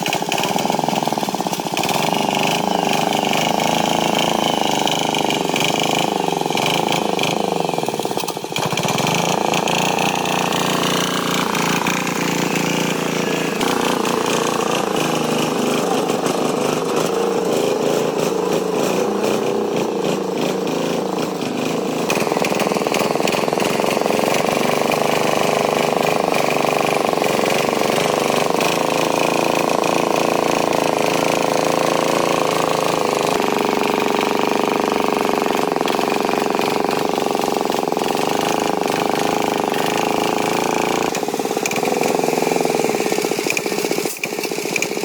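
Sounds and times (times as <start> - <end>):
tractor engine running: 0.0 - 45.0.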